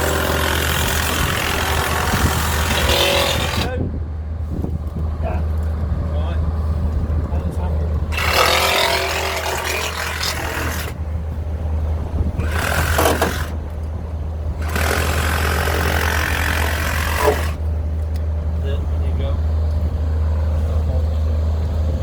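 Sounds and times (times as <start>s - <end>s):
angle grinder cutting steel: 0.0s - 3.7s, 8.1s - 11.0s, 12.4s - 13.6s, 14.6s - 17.6s
low engine hum: 0.0s - 22.0s.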